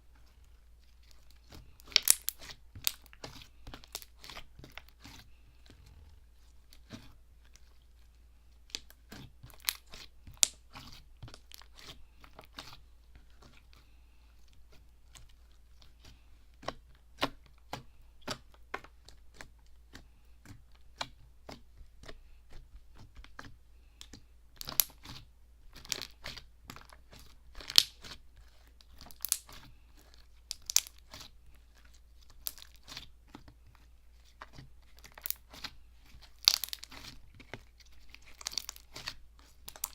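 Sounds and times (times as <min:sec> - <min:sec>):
slime clicking and popping: 0:01.8 - 0:03.1, 0:27.6 - 0:28.0, 0:28.9 - 0:29.6, 0:30.5 - 0:31.2, 0:32.4 - 0:33.0, 0:35.0 - 0:35.7, 0:36.4 - 0:37.1, 0:38.2 - 0:39.9.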